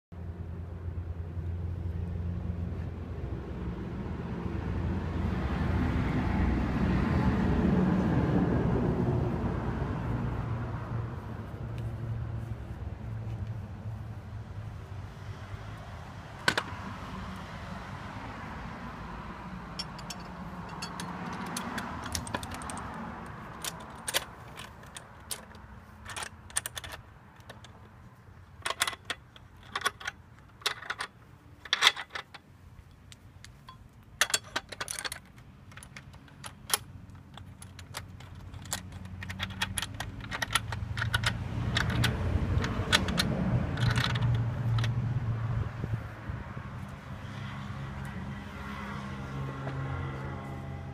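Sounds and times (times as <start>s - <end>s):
metal clicks and clinks: 19.7s - 27.9s, 28.6s - 45.0s.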